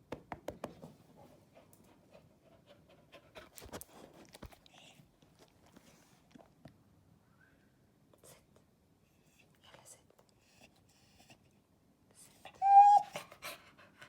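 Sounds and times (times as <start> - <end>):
dog panting faintly: 0.8 - 5.1, 12.2 - 14.0.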